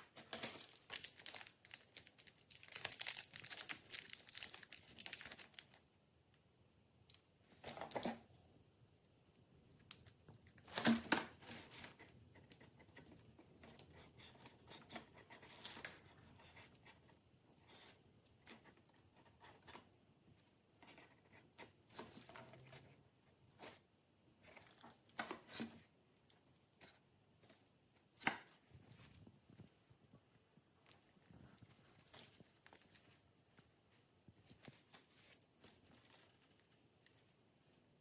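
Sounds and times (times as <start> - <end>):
objects being handled: 0.0 - 5.8.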